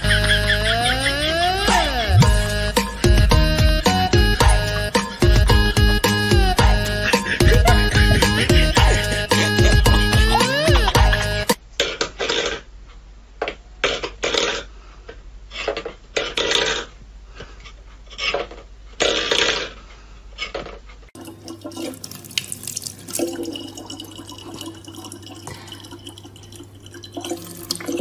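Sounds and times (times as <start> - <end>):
tap water running into plastic bottle: 21.2 - 28.0.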